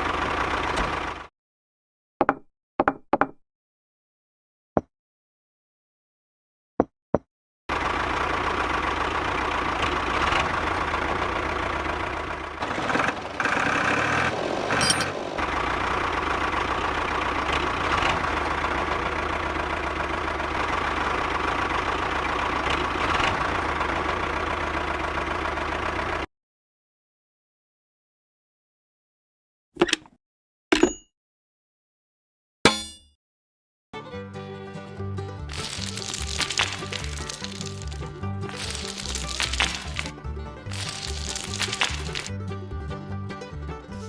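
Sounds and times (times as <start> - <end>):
tractor engine idling: 0.0 - 1.3, 7.7 - 26.3, 35.2 - 44.0.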